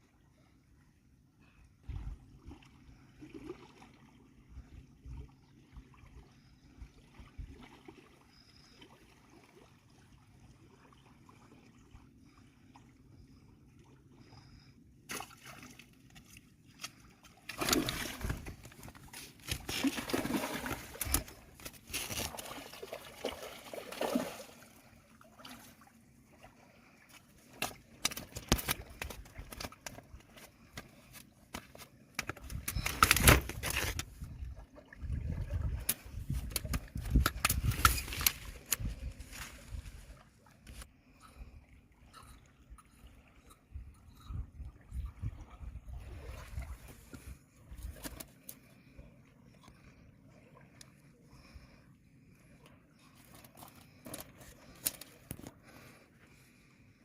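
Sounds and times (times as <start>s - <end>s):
water splashing and sloshing: 0.0s - 57.0s.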